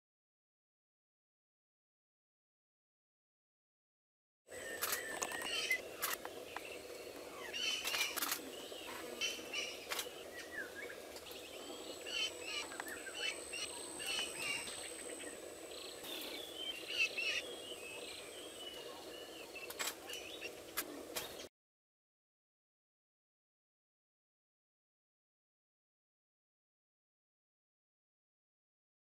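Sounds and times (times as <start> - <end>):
birds chirping and calling: 4.5 - 21.5.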